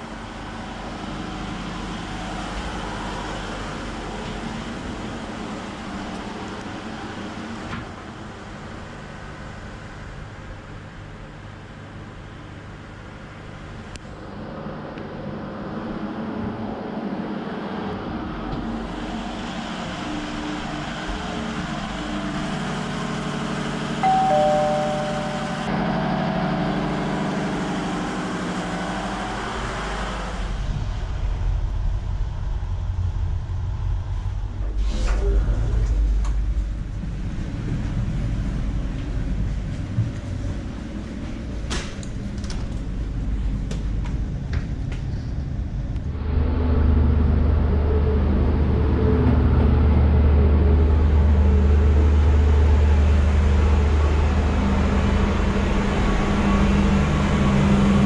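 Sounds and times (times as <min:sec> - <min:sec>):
engine room machinery drone: 0:00.0 - 0:24.0, 0:24.7 - 0:58.0
pair of tones: 0:24.0 - 0:25.8.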